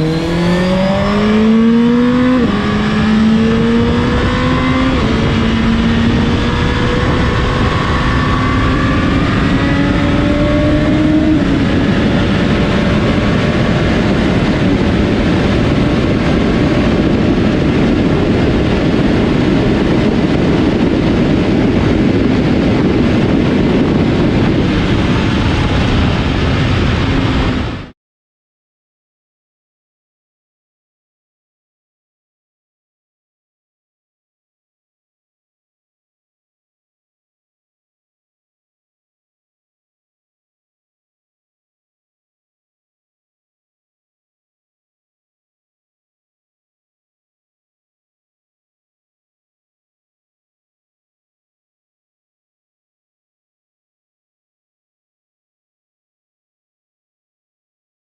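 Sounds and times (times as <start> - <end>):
loud rushing noise: 0.0 - 27.9
motorcycle engine accelerating: 0.0 - 27.9.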